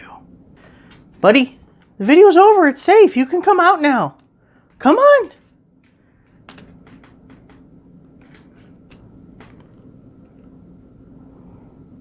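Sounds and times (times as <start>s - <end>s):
faint low hum: 0.0s - 12.0s
light clicks and taps: 4.2s - 10.6s.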